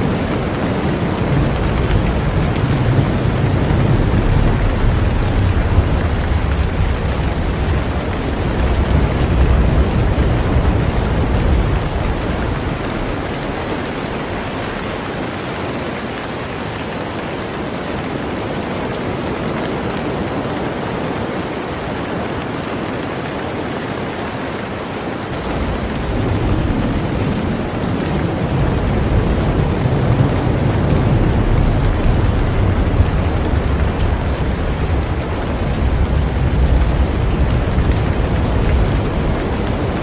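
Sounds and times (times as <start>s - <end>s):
heavy rain on a boat: 0.0s - 40.0s
deep low rumble: 25.4s - 40.0s.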